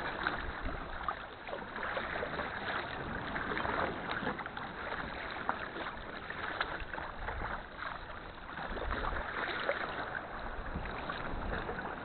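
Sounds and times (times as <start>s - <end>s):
paddle splashing water: 0.0s - 12.0s
water lapping at hull: 0.0s - 12.0s.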